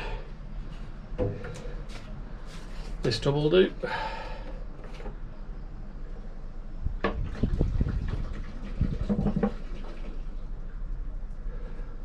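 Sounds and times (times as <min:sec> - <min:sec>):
oil running into tub: 0:07.0 - 0:10.7.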